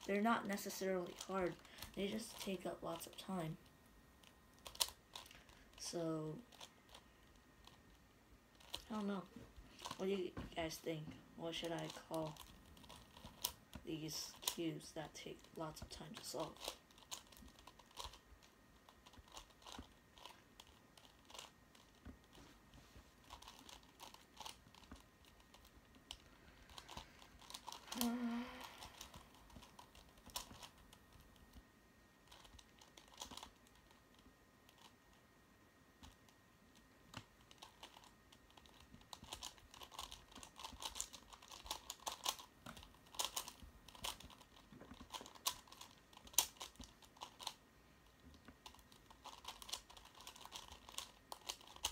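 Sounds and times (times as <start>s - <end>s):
puzzle cube clicking and rattling: 0.0s - 3.6s, 4.2s - 22.5s, 23.2s - 31.6s, 32.2s - 35.3s, 36.0s - 51.9s
person humming or groaning: 27.9s - 28.8s.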